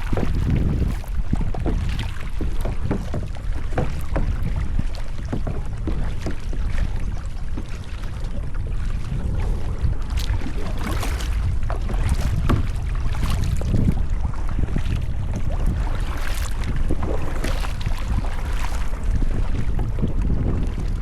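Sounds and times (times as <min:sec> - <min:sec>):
paddle strokes splashing water: 0:00.0 - 0:21.0
wind on microphone: 0:00.0 - 0:21.0
water dripping off paddle: 0:10.1 - 0:14.0, 0:15.9 - 0:16.7, 0:17.4 - 0:19.0.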